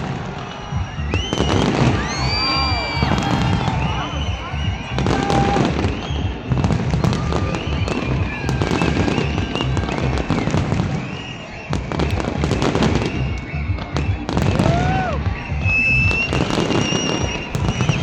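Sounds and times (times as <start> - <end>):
fireworks bangs and crackles: 0.0 - 18.0
fireworks whistling: 0.0 - 18.0
low fireworks booms: 0.0 - 18.0.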